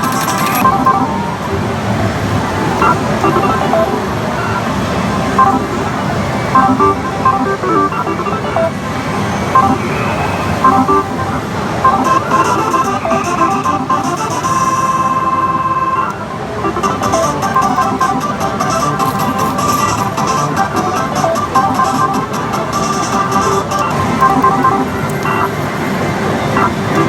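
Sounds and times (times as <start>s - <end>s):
slot machine beeps and jingles: 0.0s - 1.3s, 2.8s - 25.9s, 26.5s - 27.0s.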